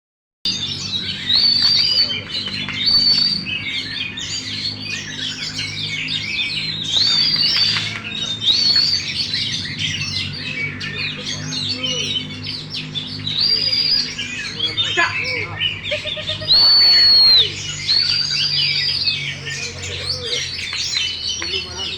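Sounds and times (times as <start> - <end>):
magpie-robin singing: 0.5 - 21.9.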